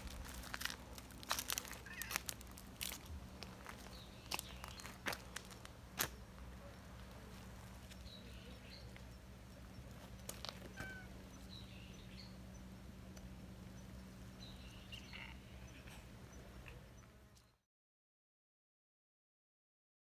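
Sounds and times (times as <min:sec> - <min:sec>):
steady low hum: 0:00.0 - 0:17.6
faint bird chirps: 0:13.6 - 0:17.6.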